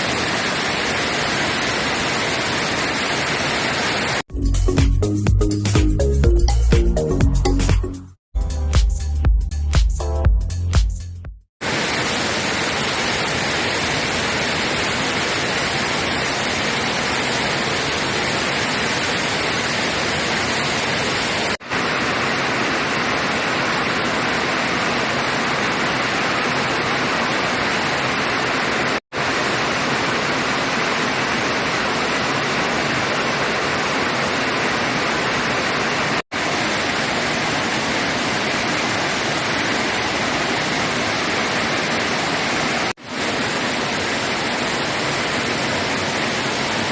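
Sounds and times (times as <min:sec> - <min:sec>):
rushing floodwater: 0:11.6 - 0:46.9.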